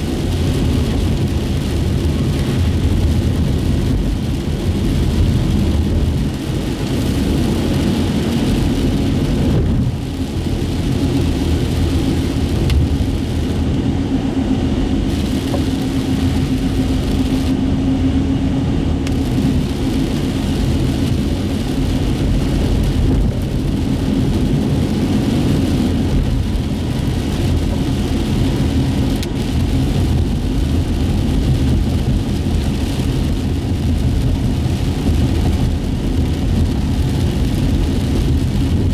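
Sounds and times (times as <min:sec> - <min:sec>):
engine and tyre rumble: 0:00.0 - 0:38.9
tyres hissing on wet pavement: 0:15.0 - 0:17.6, 0:19.1 - 0:38.8.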